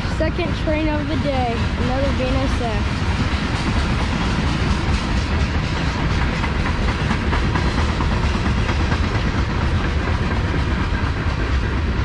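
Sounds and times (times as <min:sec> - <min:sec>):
freight train wheels rumbling on rails: 0:00.0 - 0:12.0
wheels clacking over rail joints: 0:00.1 - 0:12.0.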